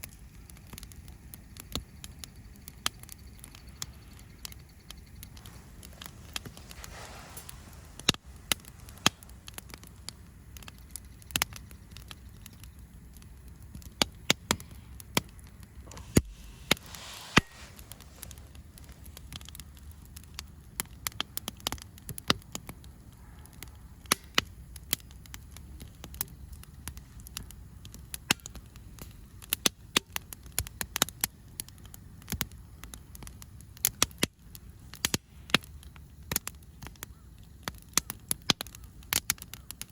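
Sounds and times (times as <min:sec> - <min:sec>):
campfire crackling: 0:00.0 - 0:39.9
sharp pops of fire: 0:00.0 - 0:39.9
low steady rumble: 0:03.2 - 0:29.4.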